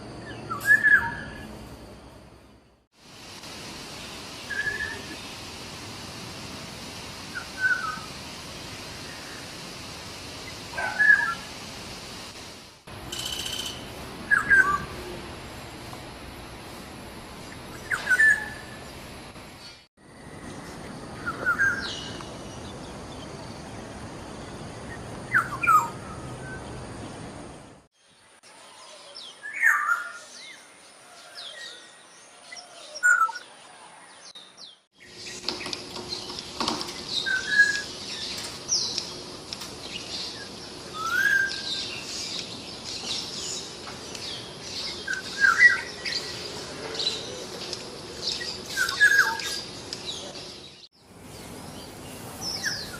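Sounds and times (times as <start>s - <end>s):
small birds chirping: 34.3s - 52.9s.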